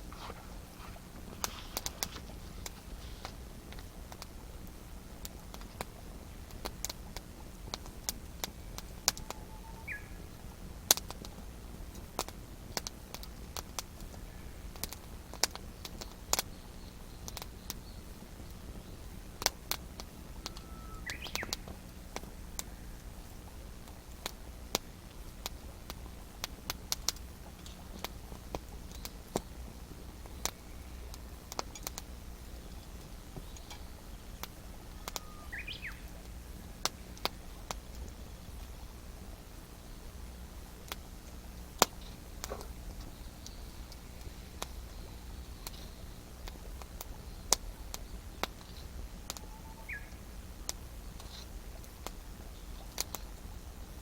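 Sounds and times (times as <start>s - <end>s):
campfire crackling and popping: 0.0s - 54.0s
short bird calls: 9.2s - 10.3s, 20.3s - 21.6s, 34.9s - 36.8s, 49.3s - 50.2s.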